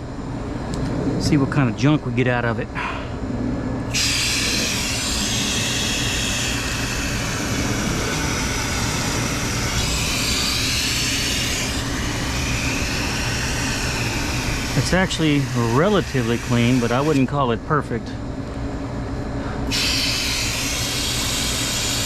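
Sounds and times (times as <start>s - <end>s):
garden hose spraying water: 3.9s - 17.3s, 19.7s - 22.0s.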